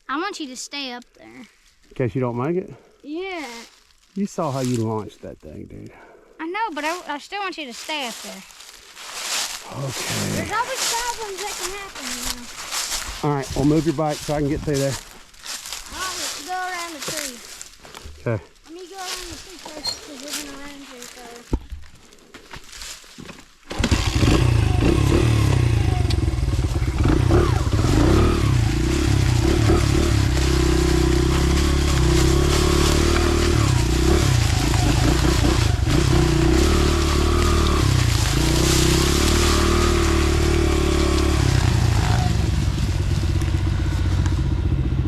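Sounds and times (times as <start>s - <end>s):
dirt bike engine revving: 23.7s - 45.0s.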